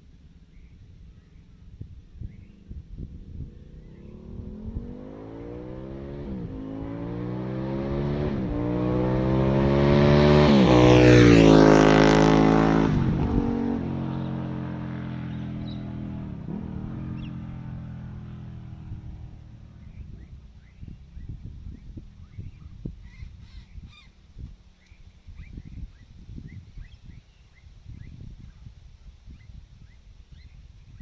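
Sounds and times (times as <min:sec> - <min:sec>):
motorcycle accelerating through gears: 0:00.6 - 0:22.9.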